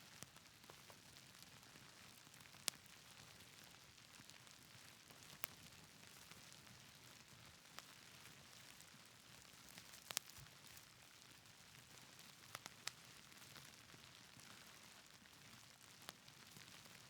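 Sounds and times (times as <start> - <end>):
wood fire crackling pops: 4.6 - 6.4, 9.4 - 10.8, 11.8 - 14.1.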